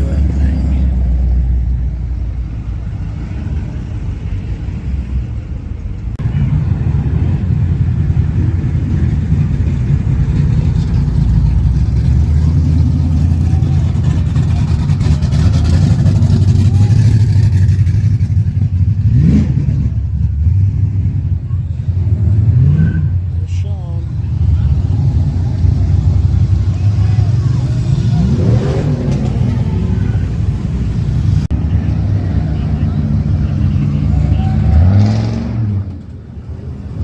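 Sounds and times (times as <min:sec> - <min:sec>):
car engine rumbling: 0:00.0 - 0:37.0
engine revving: 0:10.2 - 0:21.2, 0:24.3 - 0:36.2.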